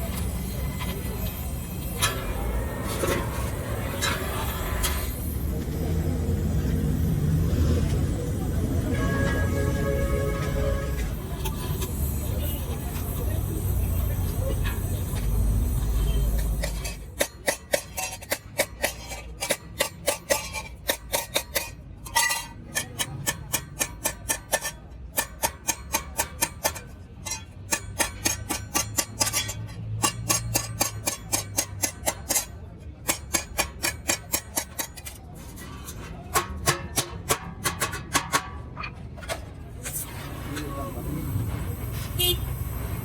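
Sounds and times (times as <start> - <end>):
hammer striking sheet metal: 16.4 - 39.4.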